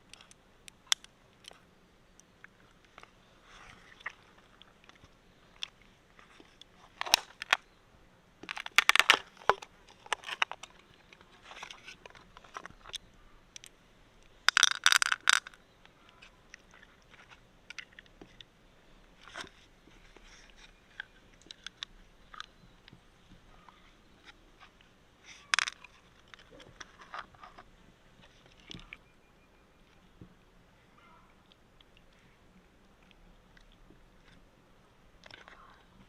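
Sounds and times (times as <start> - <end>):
mussel shells clicking: 6.9 - 7.6, 8.4 - 15.6, 25.3 - 27.6.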